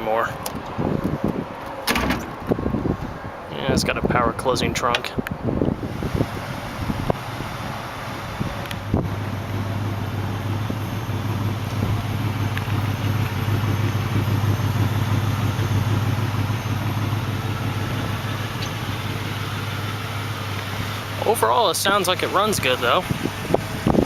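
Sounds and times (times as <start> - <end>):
car engine idling: 5.5 - 24.0.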